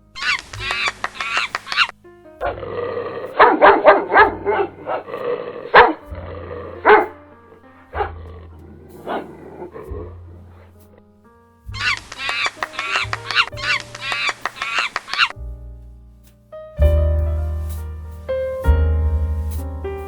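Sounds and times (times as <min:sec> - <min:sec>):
dog barking: 0:05.7 - 0:06.0.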